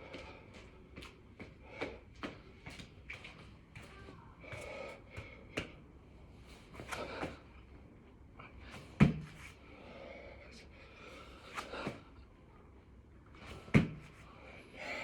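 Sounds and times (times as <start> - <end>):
person breathing hard: 0.0 - 0.8, 1.4 - 2.4, 4.4 - 5.8, 6.8 - 7.6, 9.6 - 12.2, 14.1 - 15.0
thumps and scuffs on the floor: 9.0 - 9.4, 13.5 - 14.2.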